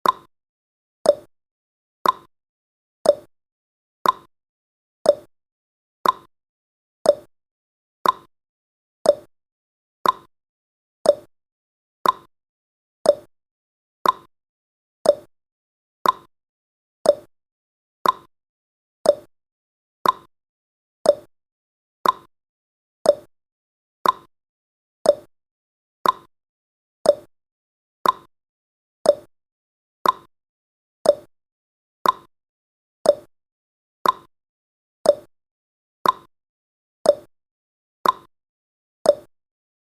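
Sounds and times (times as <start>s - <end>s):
clock ticking: 2.0s - 2.3s, 4.0s - 4.3s, 6.0s - 6.3s, 8.0s - 8.3s, 10.0s - 10.3s, 12.0s - 12.3s, 14.0s - 14.3s, 15.1s - 15.3s, 16.0s - 16.3s, 17.1s - 17.3s, 18.0s - 18.3s, 19.1s - 19.3s, 20.0s - 20.3s, 21.1s - 21.3s, 22.0s - 22.3s, 24.0s - 24.3s, 26.0s - 26.3s, 28.0s - 28.3s, 29.1s - 29.3s, 30.0s - 30.3s, 31.1s - 31.3s, 32.0s - 32.3s, 33.1s - 33.3s, 34.0s - 34.3s, 35.1s - 35.3s, 36.0s - 36.3s, 38.0s - 38.3s, 39.1s - 39.3s.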